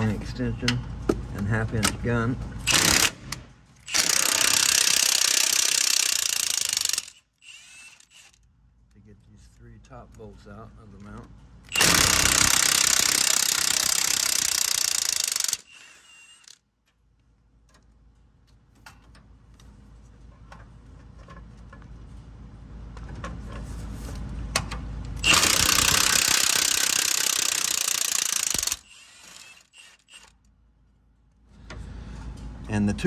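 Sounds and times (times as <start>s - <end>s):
impact gun hammering on bolts: 25.2s - 29.6s.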